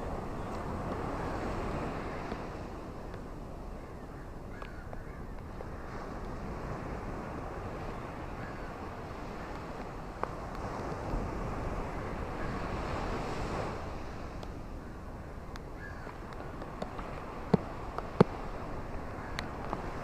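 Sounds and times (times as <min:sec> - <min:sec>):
ocean waves on shore: 0:00.0 - 0:20.0.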